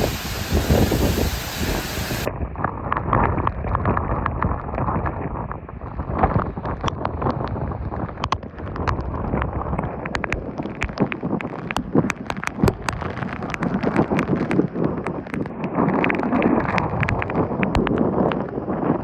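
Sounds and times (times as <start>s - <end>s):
raindrops pelting: 0.0s - 2.3s, 6.6s - 18.5s
strong wind rushing: 0.0s - 10.6s.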